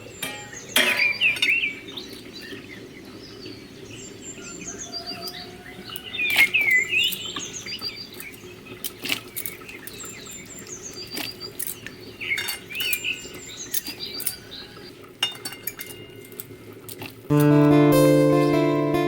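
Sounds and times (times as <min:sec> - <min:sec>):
small birds chirping: 0:00.0 - 0:15.1.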